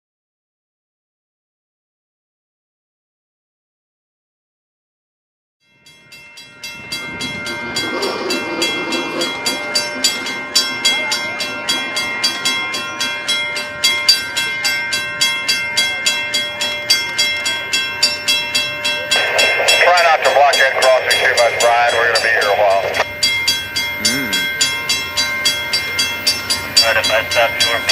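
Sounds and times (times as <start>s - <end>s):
railroad crossing bell ringing: 5.6s - 27.9s.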